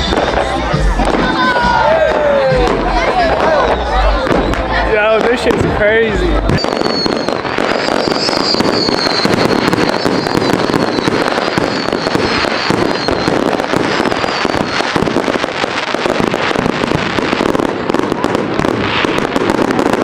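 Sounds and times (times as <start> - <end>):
fireworks crackling and popping: 0.0 - 20.0
high wavering whistle: 6.6 - 13.5.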